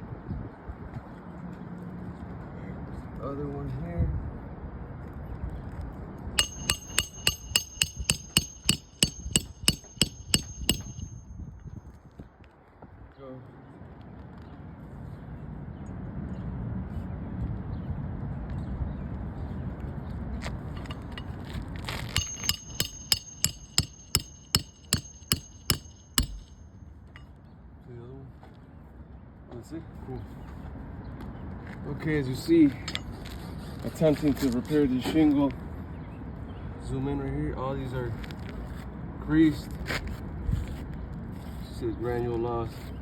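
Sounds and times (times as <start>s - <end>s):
hammer striking nail: 6.4s - 11.4s, 20.8s - 21.3s, 22.1s - 26.7s.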